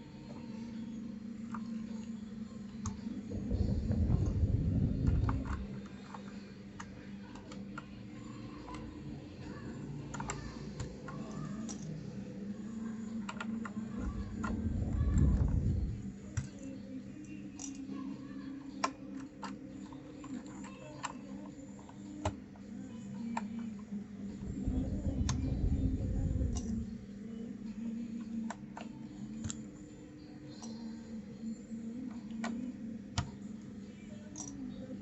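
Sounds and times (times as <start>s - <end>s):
steady low hum: 0.8s - 17.4s, 22.1s - 35.0s
low rumble of handling: 3.2s - 6.0s, 13.9s - 16.4s, 24.3s - 27.2s.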